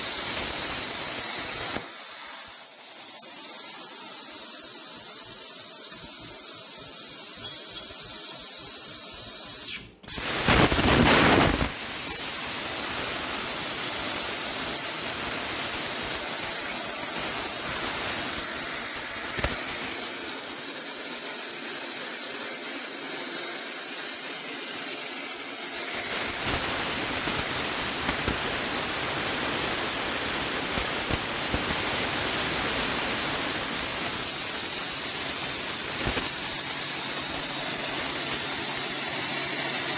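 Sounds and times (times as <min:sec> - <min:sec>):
plasma cutter torch hissing: 0:00.0 - 0:39.9.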